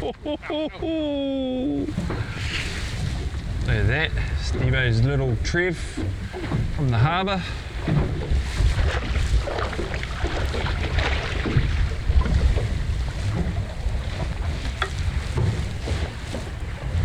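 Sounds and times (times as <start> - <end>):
strong wind buffeting microphone: 0.0 - 17.0
light knocks on boat: 4.4 - 17.0.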